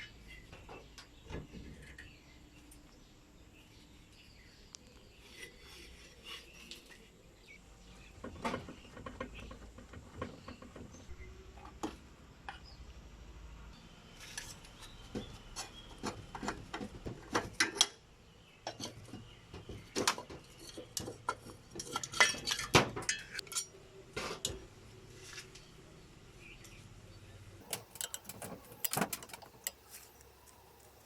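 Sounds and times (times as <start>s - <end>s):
metal tools clinking: 27.6s - 31.0s.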